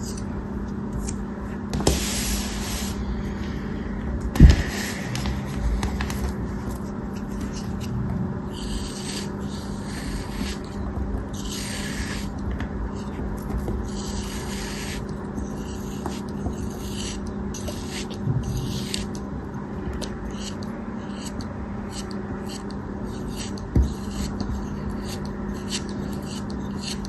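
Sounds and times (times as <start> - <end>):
low hum: 0.0 - 15.9
soft material cut and scraped: 20.2 - 27.0.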